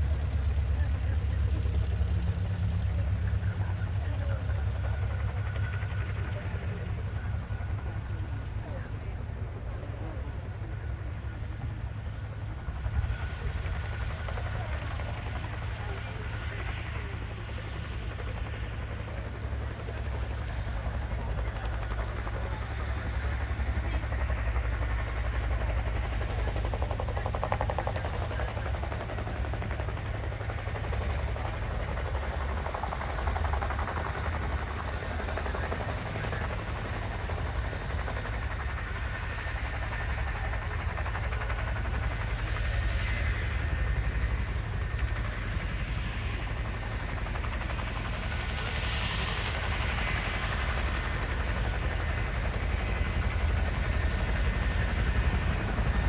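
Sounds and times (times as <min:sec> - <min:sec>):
helicopter rotor and engine noise: 0:00.0 - 0:56.0
high turbine whine: 0:27.1 - 0:56.0.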